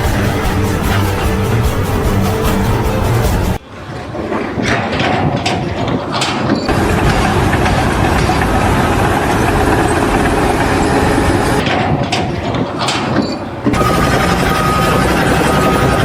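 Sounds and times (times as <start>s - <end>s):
engine running loudly: 6.7s - 11.6s, 13.8s - 16.0s.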